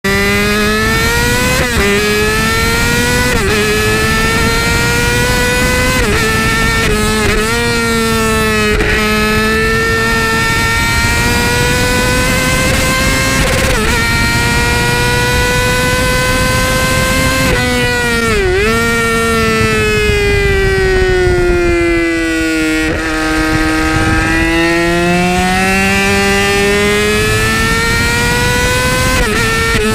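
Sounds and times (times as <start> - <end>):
motorcycle engine at high revs: 0.0 - 29.9.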